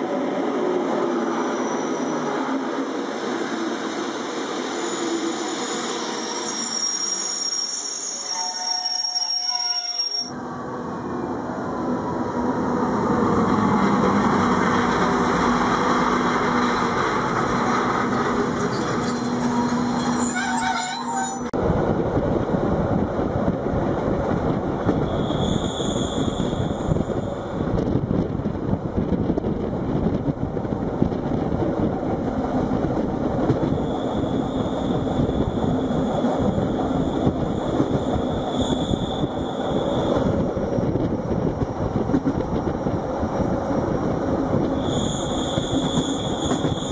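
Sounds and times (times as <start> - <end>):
wheel flange squeal: 4.8 - 10.3, 18.6 - 21.5, 44.8 - 46.9
train rail rumble: 10.2 - 46.9.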